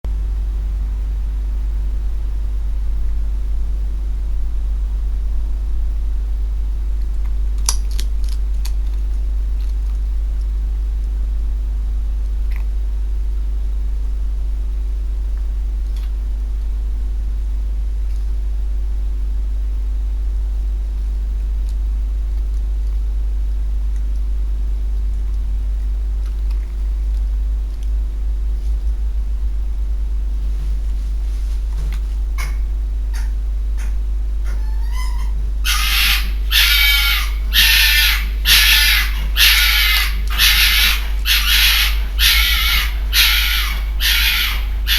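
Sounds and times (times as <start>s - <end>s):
low electrical hum: 0.1s - 44.9s
fox crunching on food: 6.9s - 11.2s, 21.1s - 29.7s.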